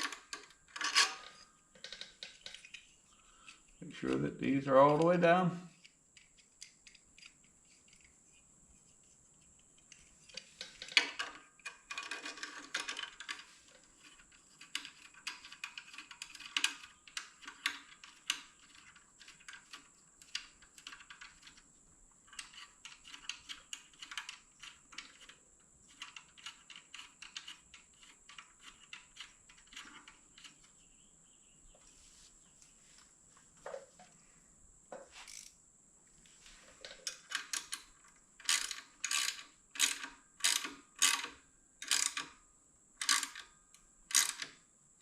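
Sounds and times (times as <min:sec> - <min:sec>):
hand tools clicking on metal parts: 0:00.0 - 0:05.2, 0:10.3 - 0:21.6, 0:36.9 - 0:42.3, 0:43.0 - 0:43.4.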